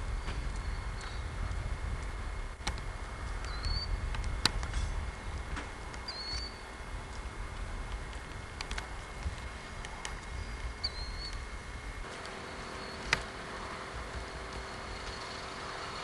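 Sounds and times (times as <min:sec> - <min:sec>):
wind rumble on microphone: 0:00.0 - 0:16.0
sharp clicks: 0:07.9 - 0:11.4, 0:12.1 - 0:15.5
high rising chirps: 0:12.3 - 0:13.9.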